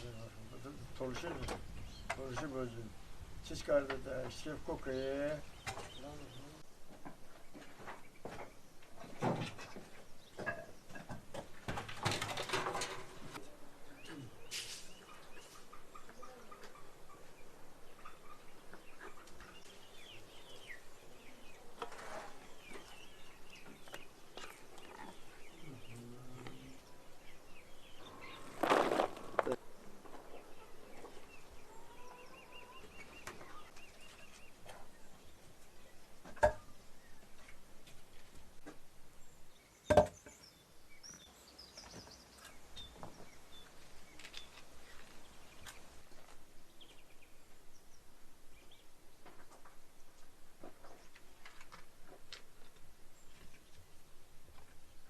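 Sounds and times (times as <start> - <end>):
small birds chirping: 0.0 - 11.7, 13.3 - 55.0
rustles and knocks: 6.9 - 13.4.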